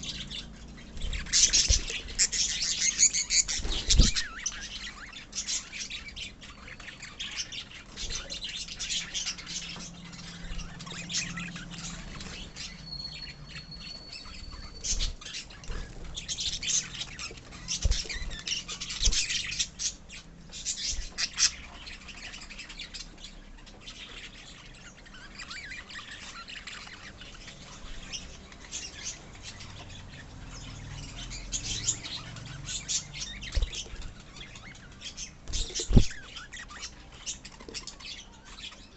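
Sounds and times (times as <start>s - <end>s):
lovebirds chirping and squawking: 0.0s - 38.9s
steady held bird whistle: 12.4s - 15.2s.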